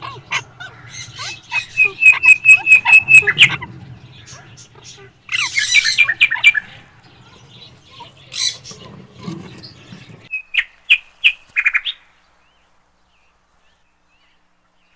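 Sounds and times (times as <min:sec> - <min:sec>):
parakeet chirps: 0:00.0 - 0:10.3
parakeet squawk: 0:00.0 - 0:10.3.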